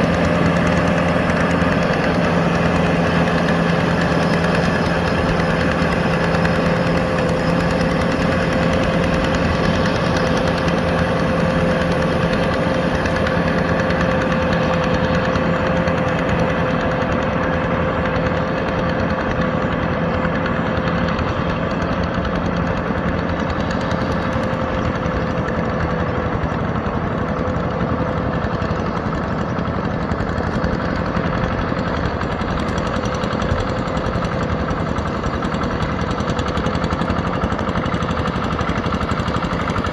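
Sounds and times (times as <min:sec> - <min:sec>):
steady whine: 0:00.0 - 0:28.0
tractor diesel engine running: 0:00.0 - 0:39.9.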